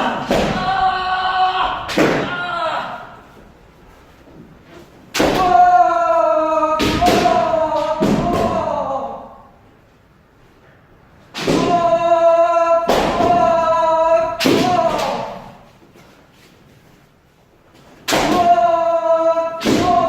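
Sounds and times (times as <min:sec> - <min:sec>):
people shouting: 0:00.0 - 0:03.4, 0:05.1 - 0:09.5, 0:11.4 - 0:15.7, 0:18.1 - 0:20.0.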